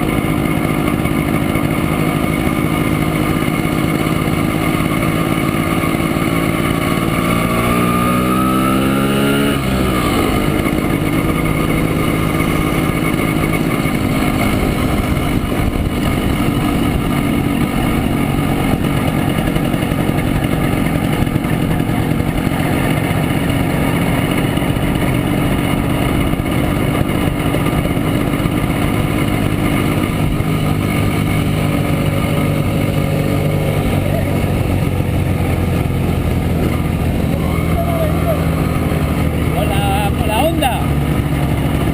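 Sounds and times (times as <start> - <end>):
two-stroke motorcycle engine: 0.0 - 41.9.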